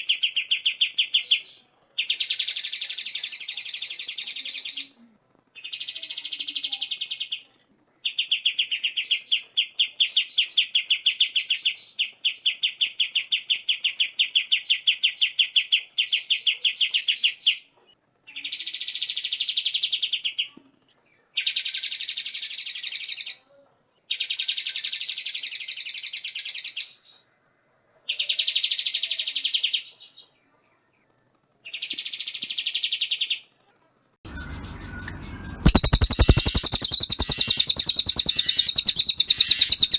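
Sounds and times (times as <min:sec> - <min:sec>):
songbird singing buzzy trills: 0:34.3 - 0:39.9.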